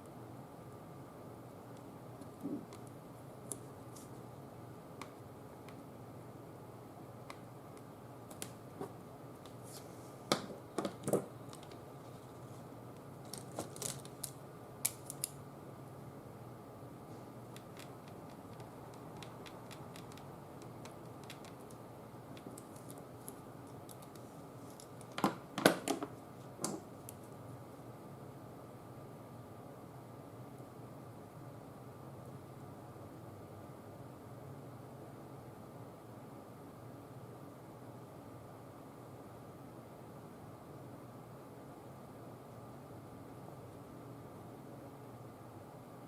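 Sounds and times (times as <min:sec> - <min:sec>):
faint steady hum: 0:00.0 - 0:46.0
craft tools and paper clicking: 0:17.5 - 0:25.2.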